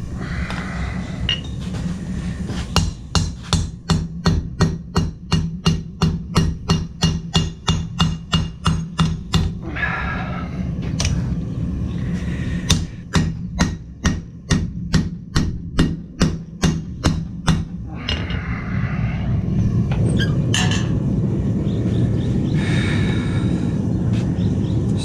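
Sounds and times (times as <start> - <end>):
steady low hum: 0.0 - 25.0
hammer striking steel on anvil: 2.8 - 9.5, 12.7 - 18.3.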